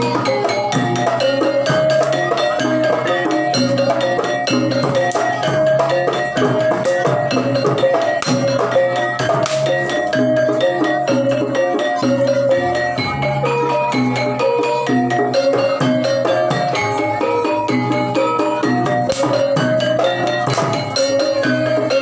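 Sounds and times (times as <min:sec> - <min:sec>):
gamelan music: 0:00.0 - 0:22.0.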